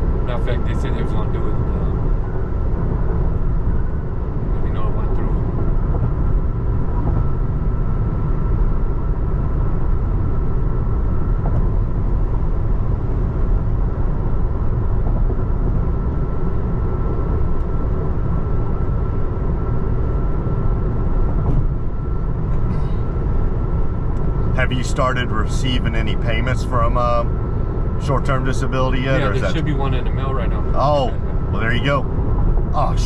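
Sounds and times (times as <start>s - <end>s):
road and tyre rumble in car: 0.0s - 33.0s
faint high whine: 21.8s - 32.1s.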